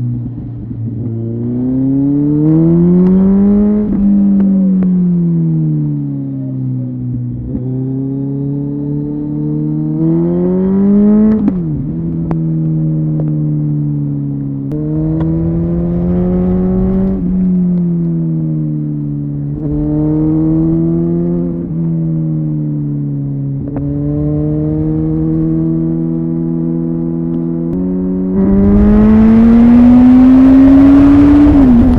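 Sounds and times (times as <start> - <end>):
motorcycle engine changing gears: 14.7 - 22.4, 23.4 - 31.9.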